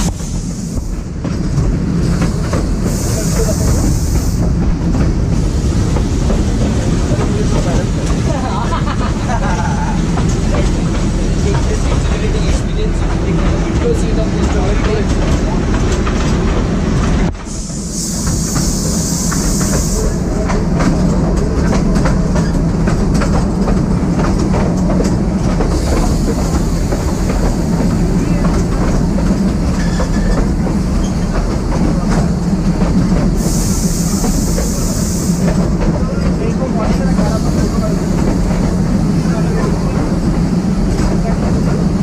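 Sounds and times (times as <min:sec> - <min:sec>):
train rumbling: 0:00.0 - 0:42.0
high hiss: 0:17.4 - 0:20.3, 0:33.4 - 0:35.7
wheels clicking over rail joints: 0:19.6 - 0:33.5.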